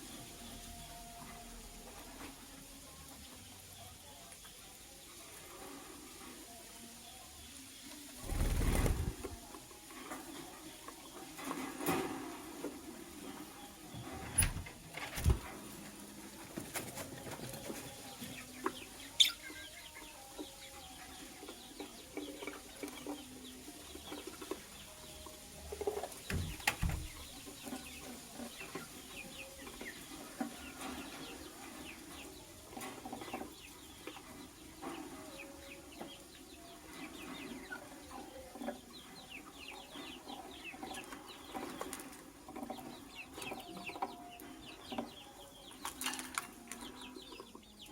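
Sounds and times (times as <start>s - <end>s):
lovebird chirping: 19.1s - 19.7s.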